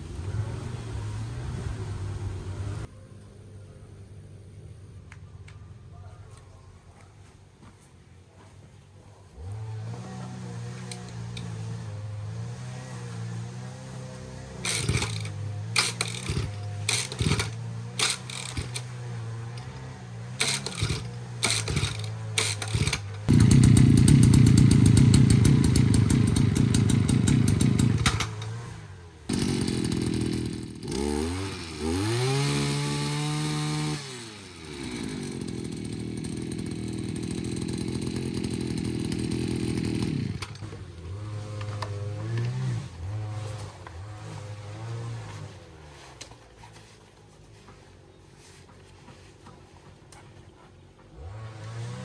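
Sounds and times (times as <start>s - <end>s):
brush cutter engine revving: 9.3s - 45.7s, 51.1s - 52.0s.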